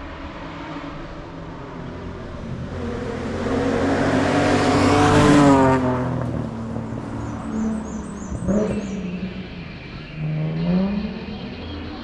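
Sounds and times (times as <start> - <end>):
race car engine at full throttle: 0.0 - 12.0.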